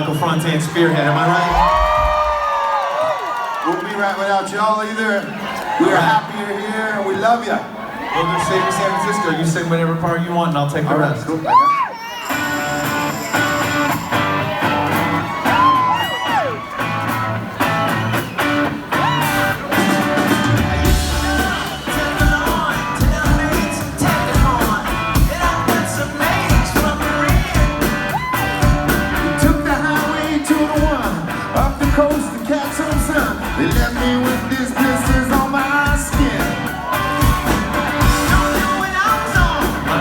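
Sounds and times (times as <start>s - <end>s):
live rock band playing: 12.1s - 40.0s.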